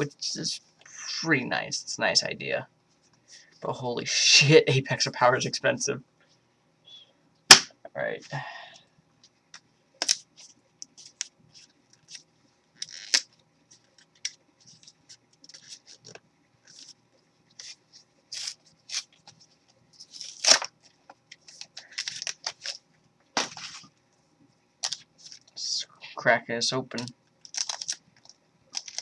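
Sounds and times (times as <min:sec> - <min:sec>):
foil wrapper crinkling and tearing: 0:12.8 - 0:17.0, 0:17.6 - 0:19.4, 0:20.0 - 0:22.8, 0:24.8 - 0:25.5, 0:27.4 - 0:29.0.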